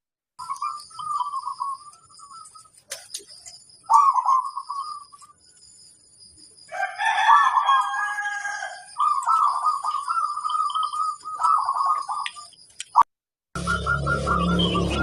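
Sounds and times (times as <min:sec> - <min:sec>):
dove cooing: 0:00.4 - 0:05.3, 0:07.0 - 0:12.4, 0:13.6 - 0:15.0
rooster crowing: 0:06.7 - 0:09.0.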